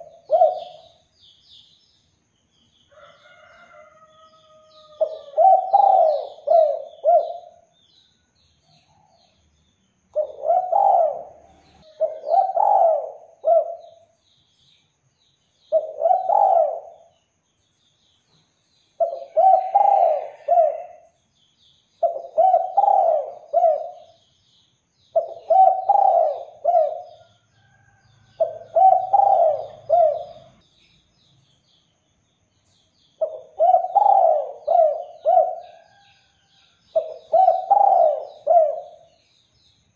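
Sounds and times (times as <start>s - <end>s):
dove cooing: 0.0s - 1.0s, 4.8s - 7.6s, 10.2s - 14.1s, 15.7s - 17.1s, 19.0s - 21.1s, 22.0s - 24.2s, 25.1s - 27.3s, 28.4s - 30.6s, 33.2s - 36.0s, 36.9s - 39.1s
faint high bird chirps: 0.0s - 39.9s.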